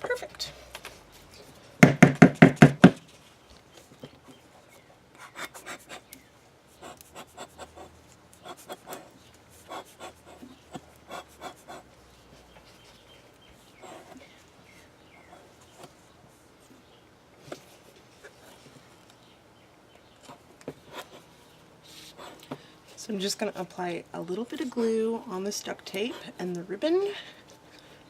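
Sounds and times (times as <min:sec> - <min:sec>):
loud rapid knocks: 0:01.8 - 0:03.0.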